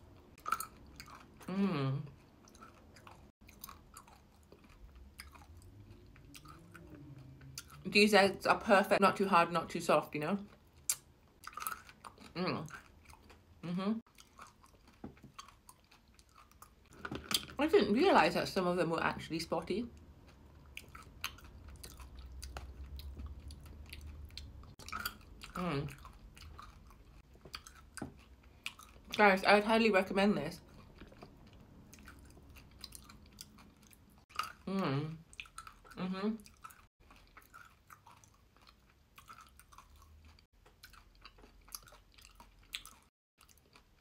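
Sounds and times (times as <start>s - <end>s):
wet chewing clicks and smacks: 0.1s - 1.5s, 2.1s - 7.8s, 10.4s - 13.5s, 14.1s - 17.5s, 19.9s - 29.2s, 30.6s - 44.0s
person humming mmm: 1.5s - 2.1s, 13.6s - 14.0s, 34.7s - 35.2s.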